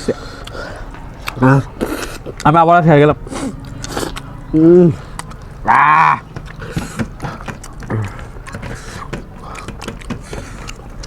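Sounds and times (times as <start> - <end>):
eating clicks and taps on plates: 6.2 - 11.0.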